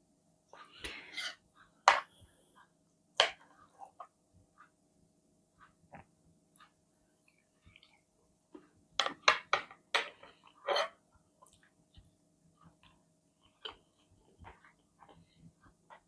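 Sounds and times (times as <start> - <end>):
quiet chewing: 5.6 - 8.8, 11.2 - 16.0.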